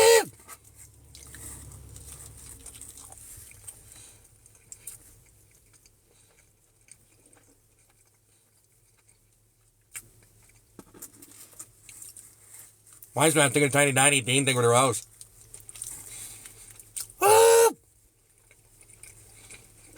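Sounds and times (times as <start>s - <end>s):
mouth clicks: 0.0s - 0.3s, 17.2s - 17.7s
person chewing food: 1.1s - 12.3s, 18.4s - 19.9s.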